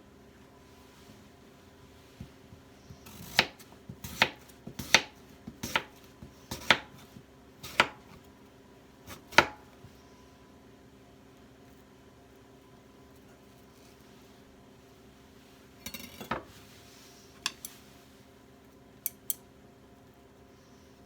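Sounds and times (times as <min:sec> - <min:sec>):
knife chopping on cutting board: 0:02.2 - 0:08.2, 0:09.1 - 0:09.8.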